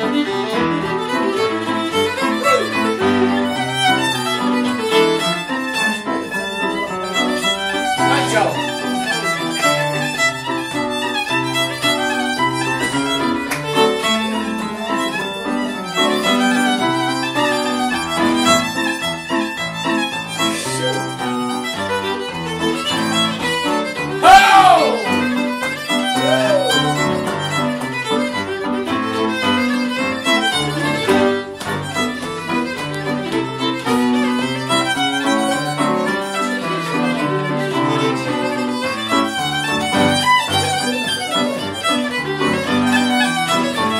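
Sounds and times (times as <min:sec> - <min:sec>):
fiddle playing brisk tune: 0:00.0 - 0:43.9
loud shout: 0:24.2 - 0:25.1, 0:26.2 - 0:27.0.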